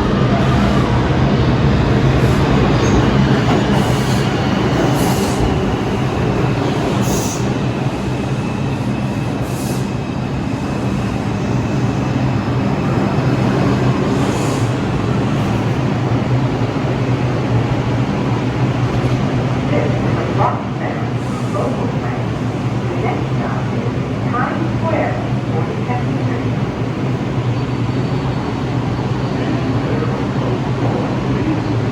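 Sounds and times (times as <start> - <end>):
subway train rumbling: 0.0 - 31.9.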